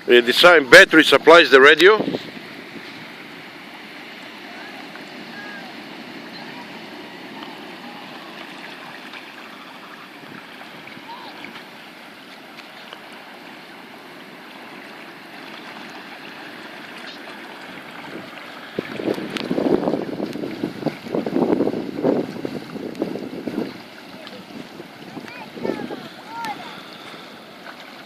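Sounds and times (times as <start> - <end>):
wind gusting on microphone: 0.0 - 3.8, 17.8 - 26.9
lake water: 0.0 - 28.0
wind: 0.0 - 28.0.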